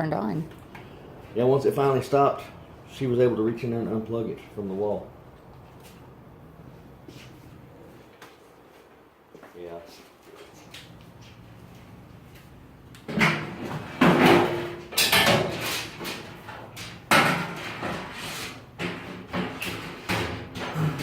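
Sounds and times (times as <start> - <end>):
objects knocking and banging: 13.0 - 21.0.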